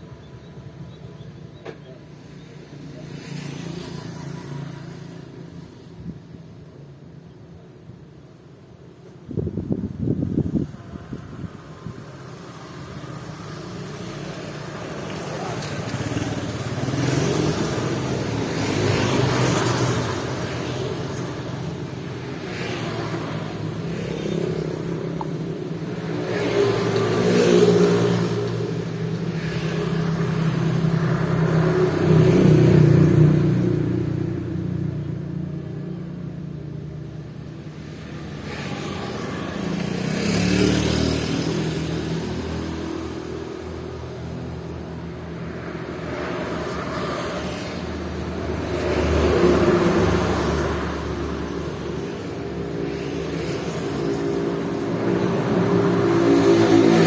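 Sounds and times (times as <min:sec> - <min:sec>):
vehicles passing on road: 0:00.0 - 0:57.0.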